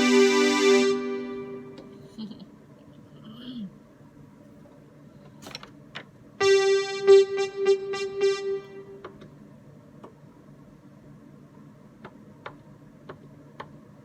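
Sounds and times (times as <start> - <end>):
electronic keyboard note: 0.0 - 2.1, 6.4 - 9.2.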